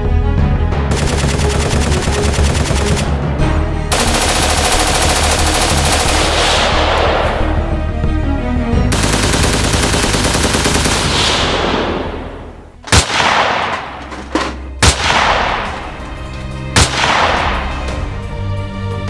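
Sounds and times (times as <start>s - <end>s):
music: 0.0s - 19.0s
automatic gunfire burst: 0.9s - 3.1s, 3.9s - 7.1s, 8.9s - 11.9s
loud single gunshots: 11.1s - 14.1s, 14.8s - 15.9s, 16.8s - 18.0s.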